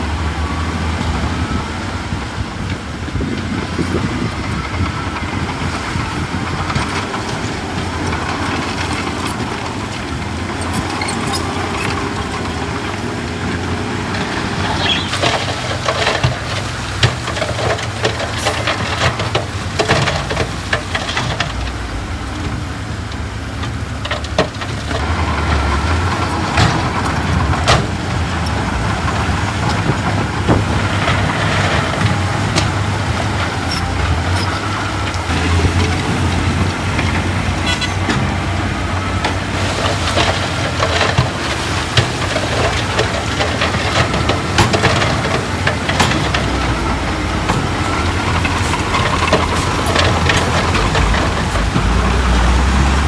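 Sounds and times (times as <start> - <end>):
diesel earthmoving machinery running: 0.0 - 53.0
metallic clanks and rattles: 14.1 - 25.5, 39.2 - 52.4.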